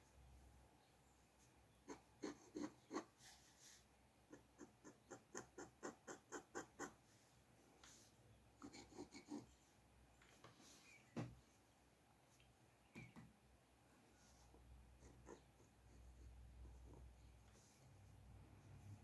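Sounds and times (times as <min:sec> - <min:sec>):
pencil scratching on paper: 0:01.9 - 0:07.2, 0:08.6 - 0:09.5.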